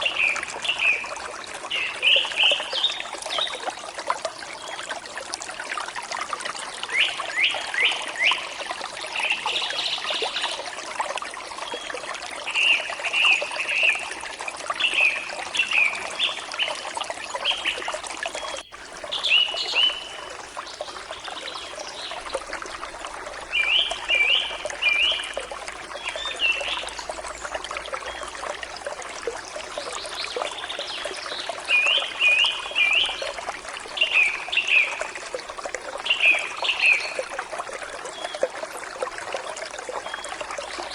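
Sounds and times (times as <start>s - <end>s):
birds singing: 0.0s - 3.7s, 14.7s - 28.5s, 29.8s - 35.2s, 36.0s - 37.4s, 39.9s - 40.9s
stream trickling: 0.0s - 40.9s.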